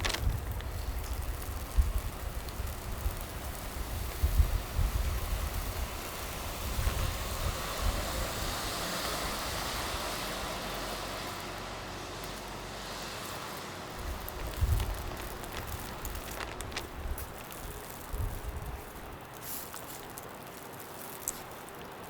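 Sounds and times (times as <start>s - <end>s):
wind buffeting microphone: 0.0s - 10.2s, 13.9s - 19.3s.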